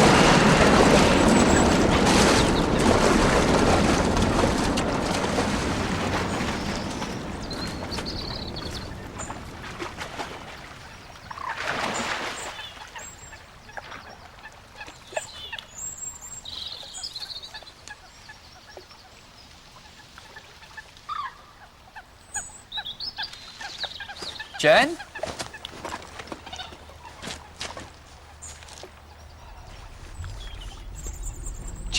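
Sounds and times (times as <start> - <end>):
birds chirping: 5.9 - 9.8, 22.2 - 31.9.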